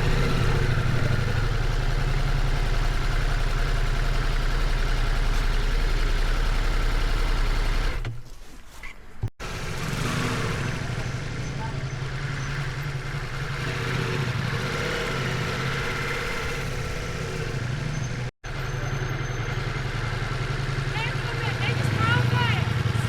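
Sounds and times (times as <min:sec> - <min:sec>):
motorcycle engine running: 0:00.0 - 0:08.2, 0:09.4 - 0:23.0.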